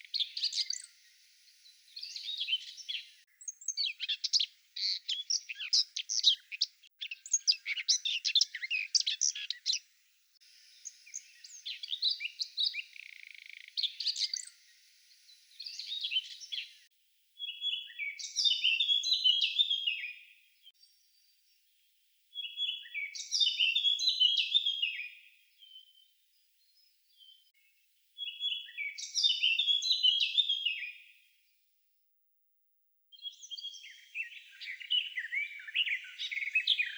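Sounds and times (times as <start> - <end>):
songbird singing: 0.0 - 31.6, 33.1 - 36.9.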